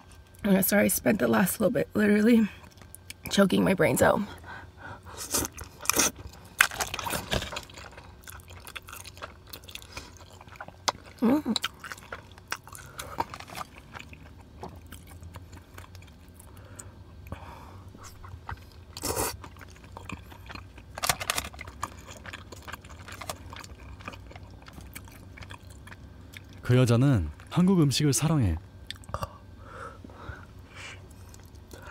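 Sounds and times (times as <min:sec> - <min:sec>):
close-miked chewing: 0:05.0 - 0:26.7, 0:31.0 - 0:31.9.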